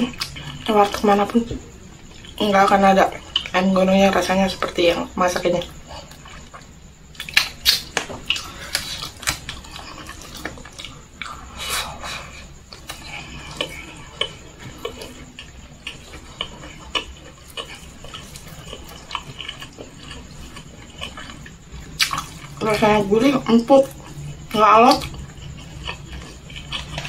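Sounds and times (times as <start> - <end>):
wet chewing and lip-smacking: 5.6 - 22.6, 23.3 - 27.0.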